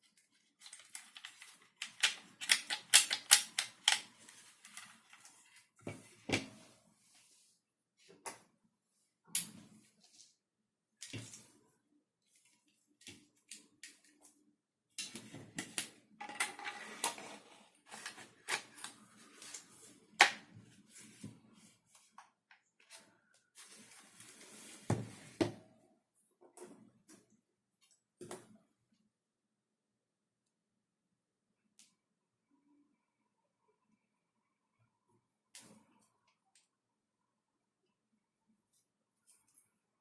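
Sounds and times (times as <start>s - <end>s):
plastic parts clicking: 0.7s - 5.3s.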